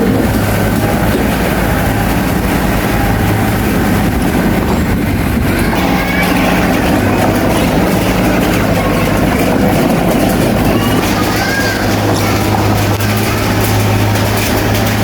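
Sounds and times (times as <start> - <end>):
bulldozer diesel engine under load: 0.0 - 15.0
steel crawler tracks clanking: 0.0 - 15.0.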